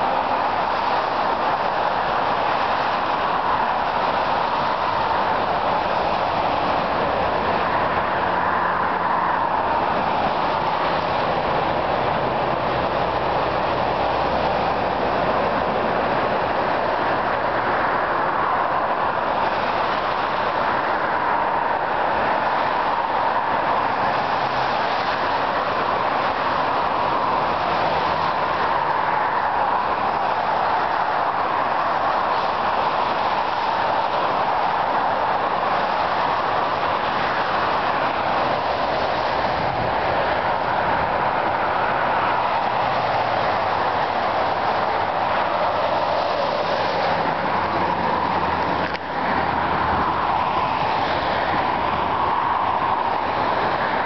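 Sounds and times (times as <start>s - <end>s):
highway traffic driving by: 0.0s - 54.0s.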